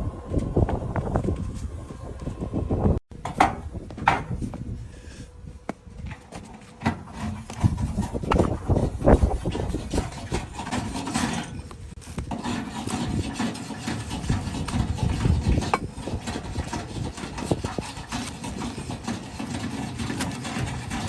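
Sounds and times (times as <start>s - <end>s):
hoof being scraped and cut: 6.1s - 21.0s.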